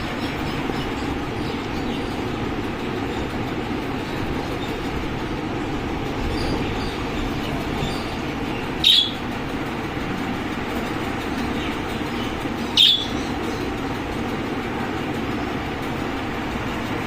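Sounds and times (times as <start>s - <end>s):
parakeet squawking: 8.8s - 9.2s, 12.7s - 13.3s.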